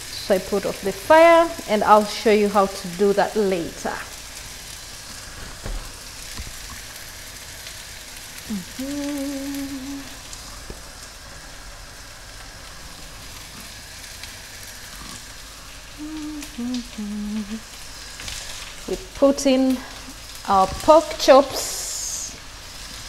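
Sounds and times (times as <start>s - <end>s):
garlic and onions sizzling in oil: 0.0s - 23.0s
person humming: 8.5s - 10.2s, 16.0s - 17.7s.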